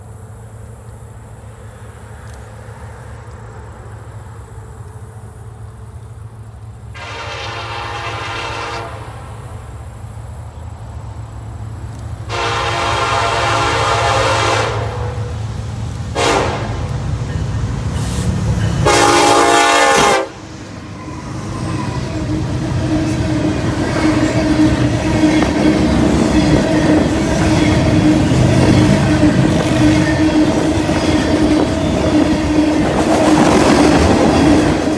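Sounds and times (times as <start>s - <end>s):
locomotive engine rumble: 0.0s - 34.9s
train wheels clacking on rails: 5.6s - 34.9s
locomotive air horn: 6.9s - 9.8s, 12.3s - 17.0s, 18.0s - 33.5s.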